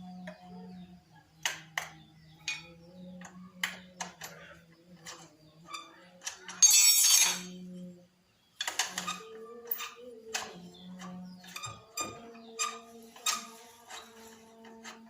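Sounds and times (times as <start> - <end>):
hand tools tapping metal: 1.4 - 7.6
scraping rattle: 4.0 - 7.6.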